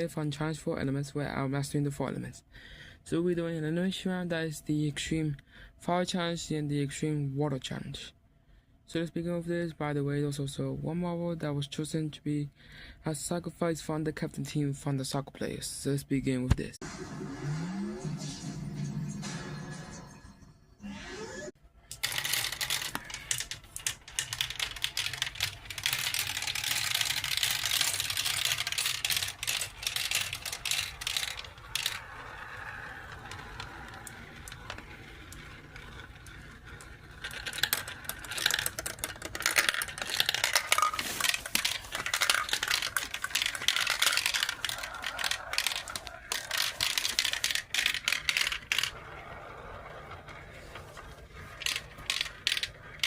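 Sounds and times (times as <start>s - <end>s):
marbles rattling on track: 21.9s - 53.0s.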